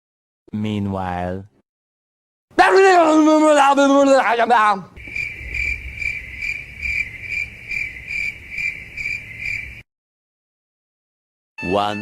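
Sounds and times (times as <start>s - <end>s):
crickets chirping: 5.0s - 9.8s.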